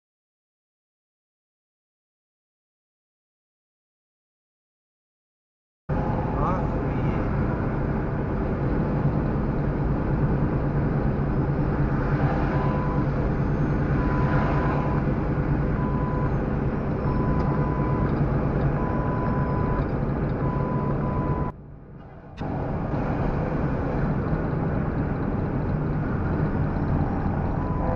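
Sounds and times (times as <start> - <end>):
truck engine and road noise: 5.9 - 27.9
high pure-tone beeps: 12.5 - 13.1, 14.0 - 15.1, 27.5 - 27.9.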